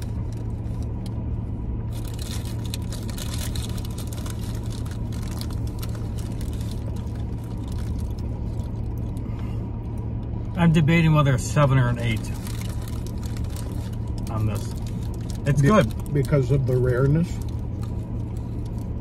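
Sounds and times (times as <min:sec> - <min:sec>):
car cabin hum: 0:00.0 - 0:19.0
paper wrappers crinkling: 0:01.9 - 0:09.1, 0:11.9 - 0:19.0.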